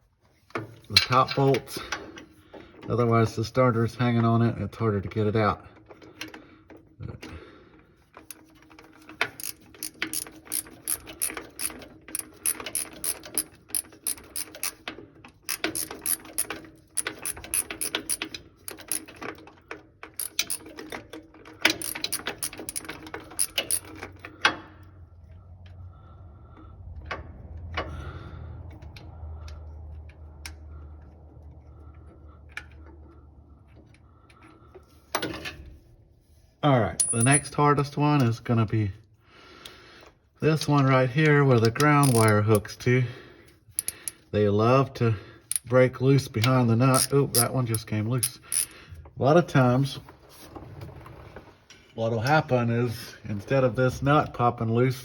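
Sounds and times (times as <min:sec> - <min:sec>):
socket ratchet clicking: 0:09.2 - 0:14.8, 0:15.4 - 0:19.2, 0:20.1 - 0:20.8, 0:21.7 - 0:23.9, 0:41.7 - 0:42.4, 0:43.7 - 0:44.2.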